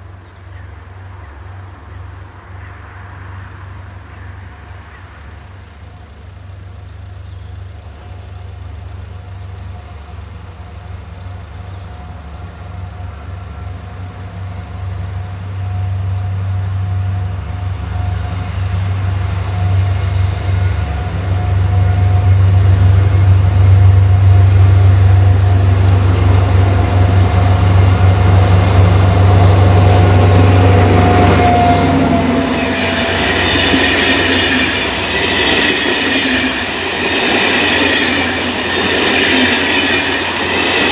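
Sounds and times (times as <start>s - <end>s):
diesel locomotive engine drone: 0.0s - 40.9s
train wheels clattering and squealing: 24.3s - 40.9s.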